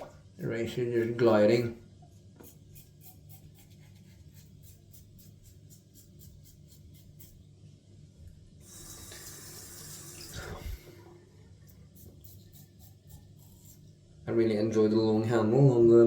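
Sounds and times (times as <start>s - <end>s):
razor scraping stubble: 2.4s - 7.4s, 11.7s - 13.9s
tap water running: 8.6s - 11.1s.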